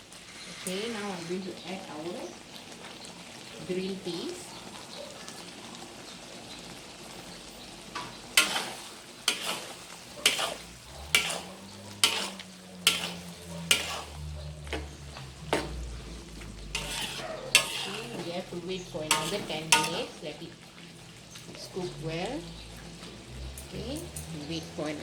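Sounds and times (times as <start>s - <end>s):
sauce simmering in a pot: 0.0s - 24.8s
spoon scraping a pot: 8.4s - 20.2s.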